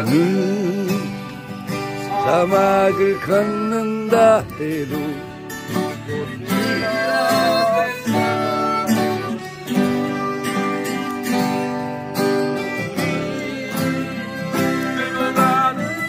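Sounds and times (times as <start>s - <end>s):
acoustic guitar strumming chords: 0.0s - 16.0s
people singing along: 6.5s - 8.6s, 12.6s - 15.9s.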